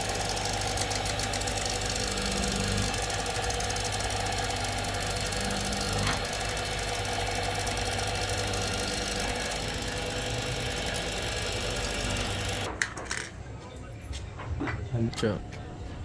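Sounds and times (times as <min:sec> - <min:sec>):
machine motor humming: 0:00.0 - 0:12.7.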